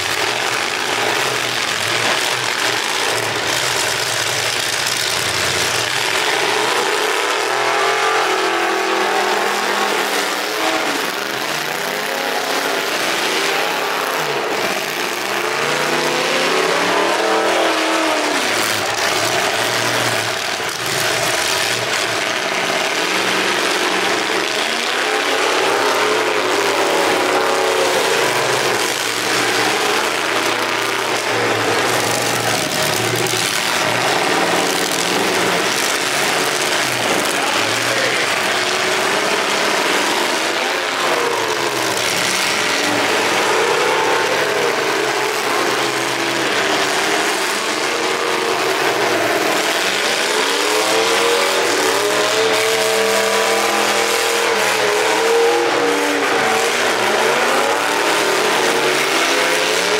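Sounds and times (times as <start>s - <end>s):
car engines revving: 0.0s - 59.9s
steady noisy din: 0.0s - 59.9s.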